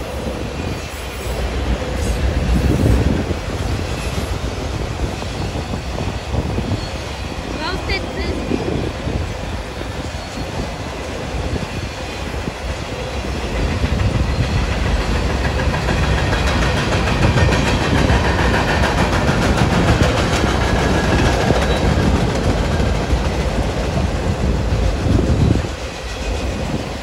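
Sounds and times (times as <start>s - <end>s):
train wheels rumbling on rails: 0.0s - 27.0s
wheels clicking over rail joints: 13.4s - 26.5s.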